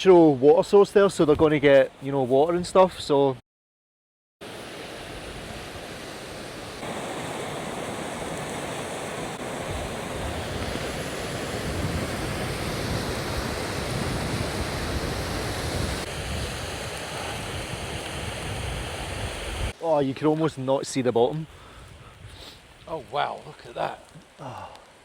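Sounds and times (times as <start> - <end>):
wind buffeting microphone: 9.3 - 19.7.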